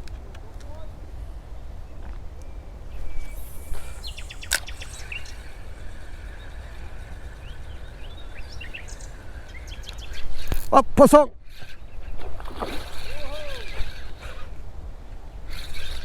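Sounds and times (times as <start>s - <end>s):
low outdoor rumble: 0.0s - 10.7s
small birds chirping: 0.6s - 10.8s, 11.4s - 14.6s, 15.2s - 16.0s.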